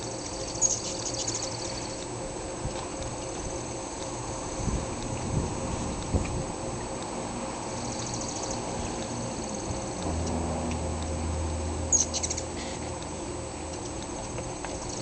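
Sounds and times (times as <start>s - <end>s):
hummingbird chip calls: 0.0s - 2.0s, 7.8s - 10.4s, 11.9s - 12.6s
steady low hum: 0.0s - 15.0s.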